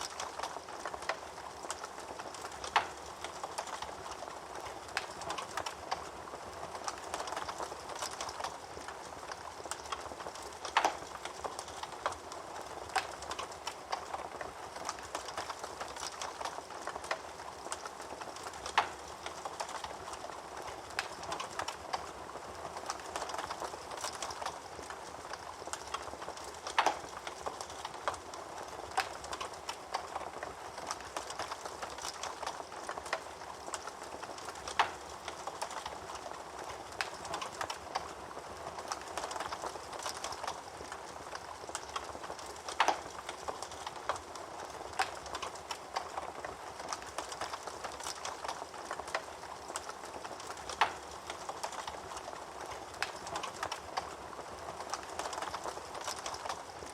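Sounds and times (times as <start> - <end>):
wood fire crackling: 0.0 - 56.9
fire pops: 9.4 - 22.1, 39.0 - 54.1.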